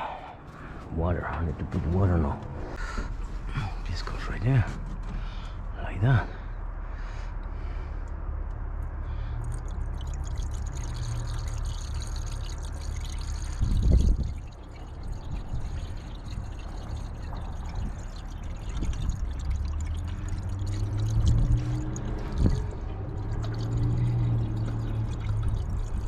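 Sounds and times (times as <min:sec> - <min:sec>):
water pouring: 0:09.4 - 0:26.0.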